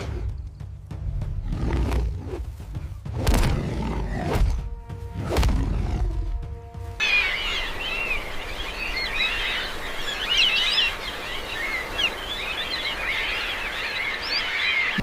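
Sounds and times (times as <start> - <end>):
birds chirping and calling: 7.0 - 15.0.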